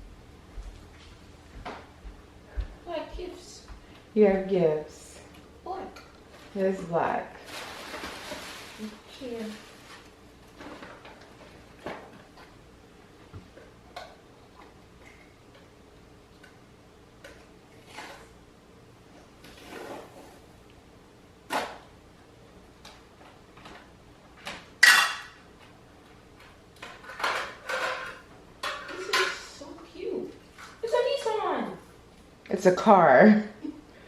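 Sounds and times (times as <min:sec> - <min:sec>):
gift being unwrapped rustling: 0:06.2 - 0:11.8.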